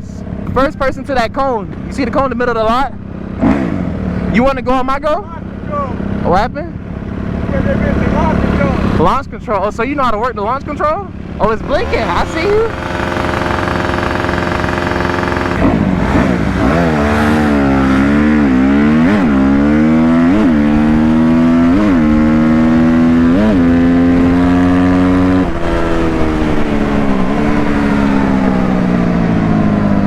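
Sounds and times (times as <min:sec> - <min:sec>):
engine revving: 0:03.3 - 0:04.2, 0:10.6 - 0:30.0.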